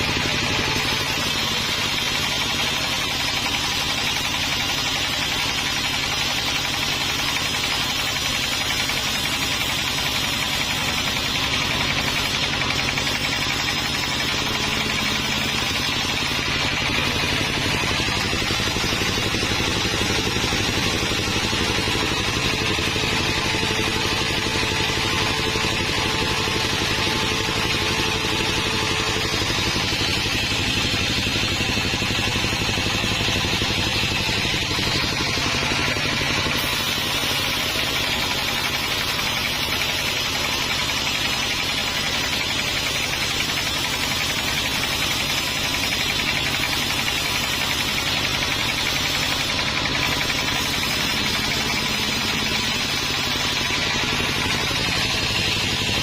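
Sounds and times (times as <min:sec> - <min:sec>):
sawmill machinery droning: 0:00.0 - 0:56.0.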